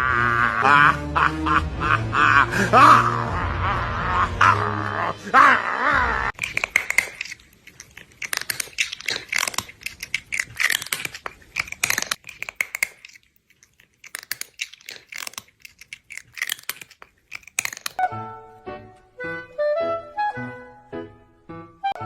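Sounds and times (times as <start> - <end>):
crunching and crinkling clicks: 6.3 - 18.0.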